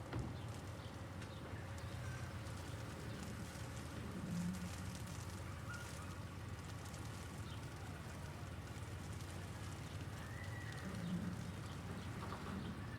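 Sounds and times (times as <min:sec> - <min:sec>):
low rumble of city traffic: 0:00.0 - 0:12.9.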